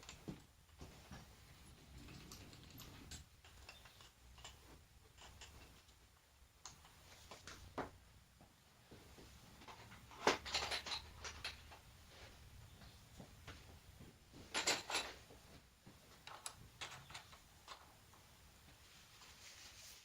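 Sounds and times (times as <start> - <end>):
hard objects clicking and knocking: 1.9 - 8.0, 9.6 - 11.9, 14.4 - 15.3, 16.2 - 18.2.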